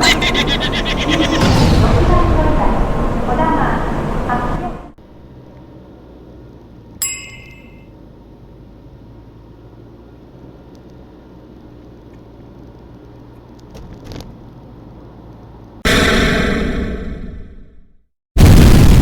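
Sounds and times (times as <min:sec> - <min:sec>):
car engine and road noise: 0:00.0 - 0:15.8
bell-like chime: 0:07.0 - 0:07.9.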